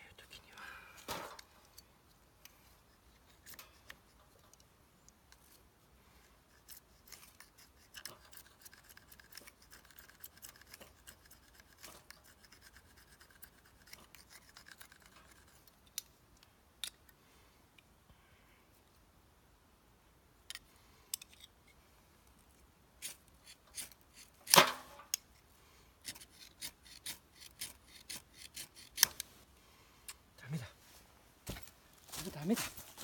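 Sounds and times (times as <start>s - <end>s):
blade scraping fire-starter rod: 23.0s - 25.2s.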